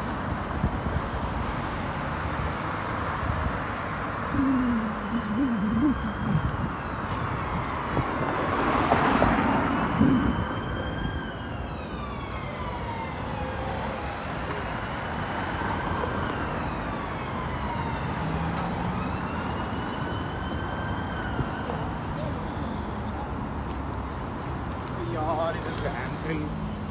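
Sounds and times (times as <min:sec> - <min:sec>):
road traffic noise: 0:00.0 - 0:26.9
siren wailing: 0:04.1 - 0:23.2.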